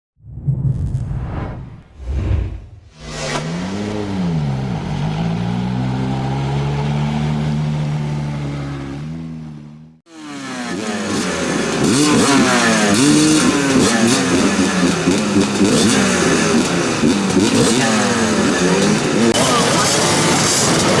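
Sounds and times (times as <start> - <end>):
motocross bike engine: 3.0 - 21.0
motocross bikes revving together: 10.1 - 21.0.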